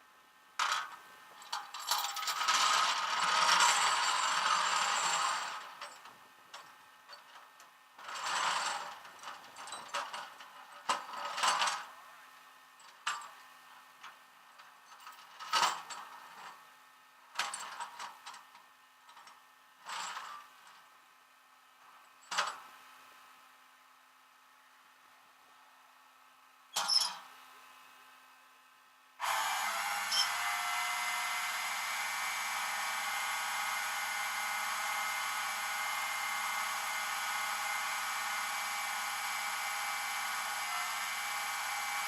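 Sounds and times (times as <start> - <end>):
metallic clinks and rattles: 1.4 - 2.6.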